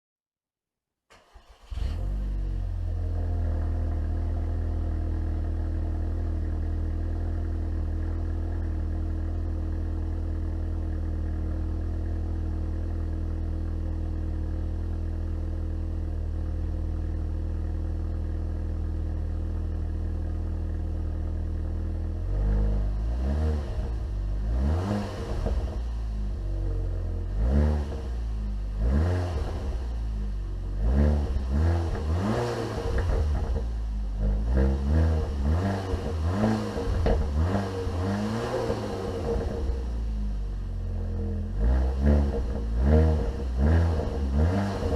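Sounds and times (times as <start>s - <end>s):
car engine idling: 1.1s - 44.9s
engine revving in blips: 22.2s - 26.4s, 27.2s - 30.1s, 30.7s - 40.1s, 41.5s - 44.9s.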